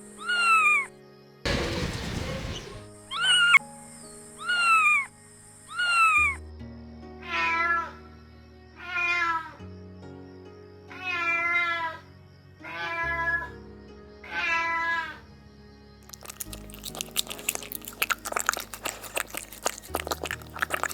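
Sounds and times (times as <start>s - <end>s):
kitten meowing: 10.9s - 11.8s.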